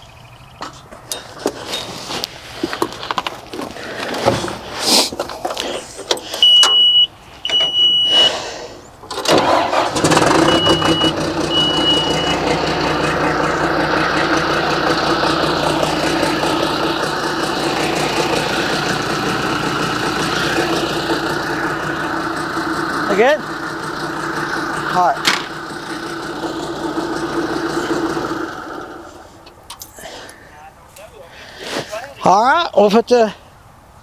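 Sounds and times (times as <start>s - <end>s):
diesel engine cranking and idling: 0.2s - 30.8s
short high beeps: 10.4s - 12.5s.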